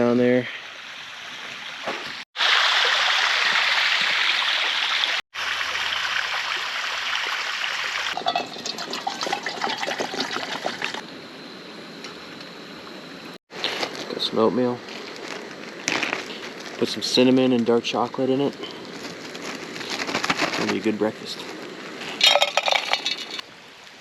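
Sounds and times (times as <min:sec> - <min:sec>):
creek water running: 0:00.4 - 0:11.0.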